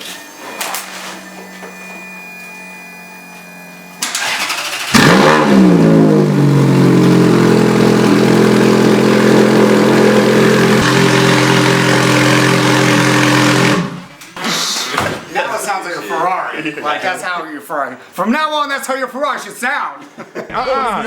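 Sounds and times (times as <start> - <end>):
starter motor cranking: 4.0 - 5.7, 9.6 - 14.1
car engine revving and idling: 4.2 - 14.1.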